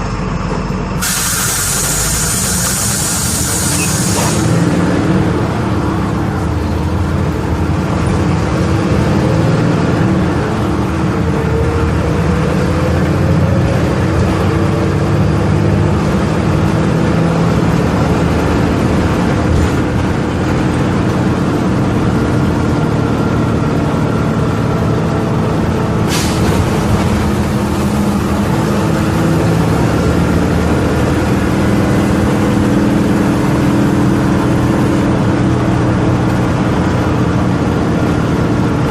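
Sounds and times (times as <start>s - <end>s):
bus diesel engine running: 0.0s - 38.9s
air hiss: 1.0s - 4.6s.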